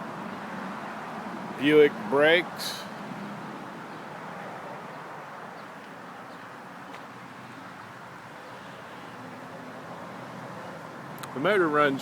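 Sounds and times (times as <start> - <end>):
low outdoor background noise: 0.0 - 12.0.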